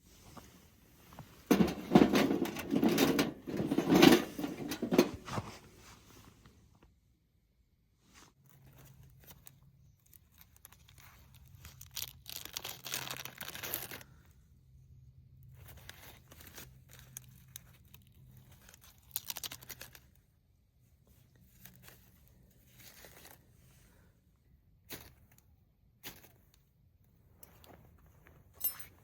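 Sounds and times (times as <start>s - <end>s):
tinder tearing and crumpling: 9.0s - 14.2s, 15.6s - 20.2s.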